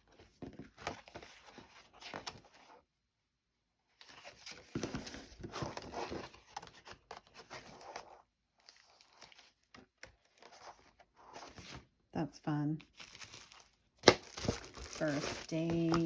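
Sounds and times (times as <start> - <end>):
paper rustling and crinkling: 4.0 - 11.9, 12.9 - 16.0.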